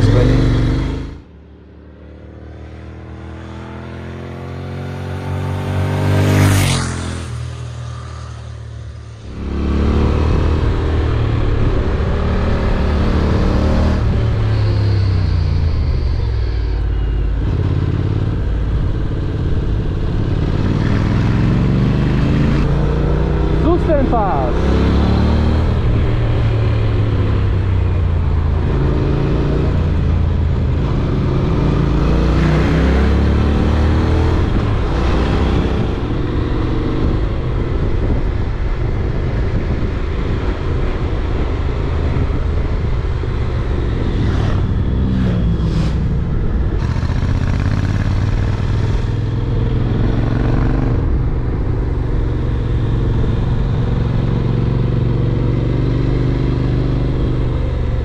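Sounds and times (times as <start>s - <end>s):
motorcycle engine revving: 0.0s - 1.4s, 2.1s - 58.0s.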